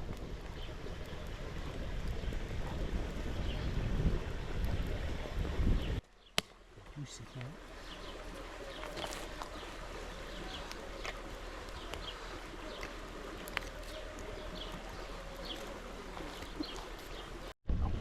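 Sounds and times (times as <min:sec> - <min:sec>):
outdoor ambience hiss: 0:00.0 - 0:17.6
small birds chirping: 0:04.7 - 0:17.6.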